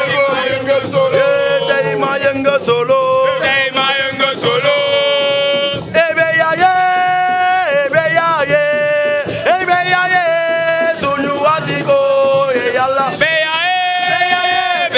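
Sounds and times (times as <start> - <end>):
men singing a chant: 0.0 - 14.9
sharp percussive beats: 0.0 - 14.9.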